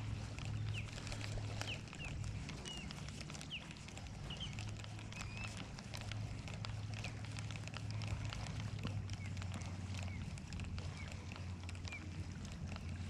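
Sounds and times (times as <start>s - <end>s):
faint clicks: 0.0s - 13.0s
small birds chirping: 0.0s - 13.0s
steady low drone: 0.0s - 13.0s.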